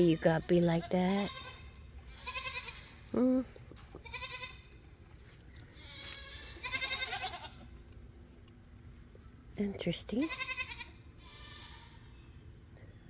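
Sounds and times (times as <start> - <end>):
goats bleating: 0.0 - 3.1, 4.0 - 4.7, 5.8 - 7.7.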